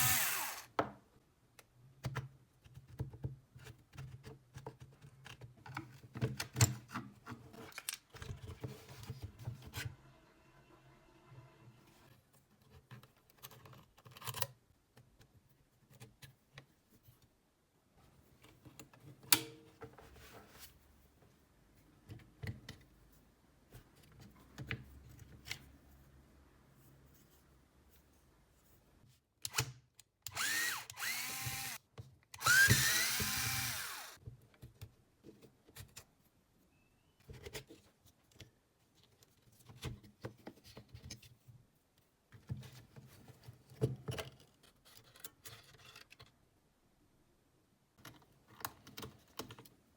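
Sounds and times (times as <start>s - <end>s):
cordless drill motor: 0.0s - 0.8s, 30.3s - 31.8s, 32.4s - 34.2s.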